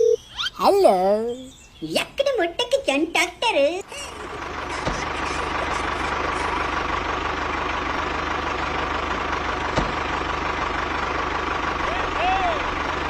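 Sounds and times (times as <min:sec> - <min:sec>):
small tractor motor running: 0:03.8 - 0:13.0.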